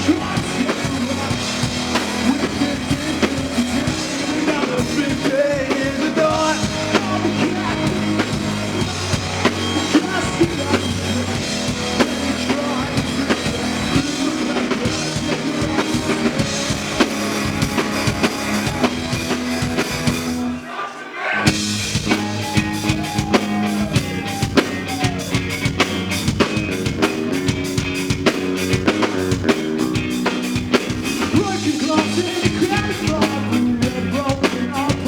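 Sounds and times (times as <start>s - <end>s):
drum kit: 0.0s - 20.6s, 21.4s - 35.0s
live band playing: 0.0s - 20.6s, 21.4s - 35.0s.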